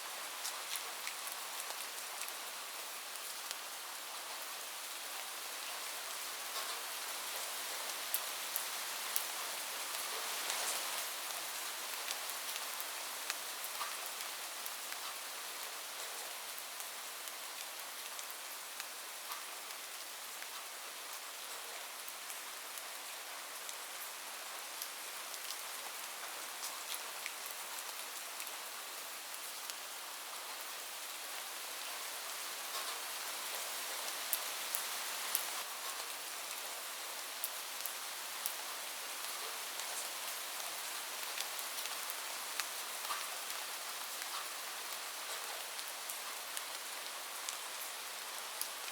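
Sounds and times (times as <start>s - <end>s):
rain falling on a roof: 0.0s - 48.9s.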